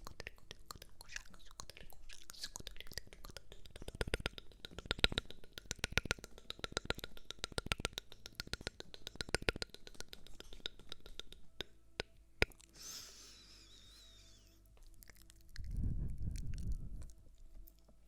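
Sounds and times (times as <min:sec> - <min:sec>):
rapid close-up clicking: 0:00.0 - 0:11.7.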